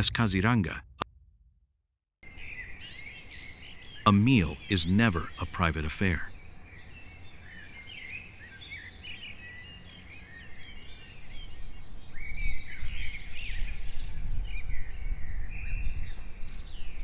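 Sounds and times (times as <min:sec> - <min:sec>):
low rumble: 0:00.0 - 0:02.0
birds chirping and calling: 0:02.3 - 0:17.0.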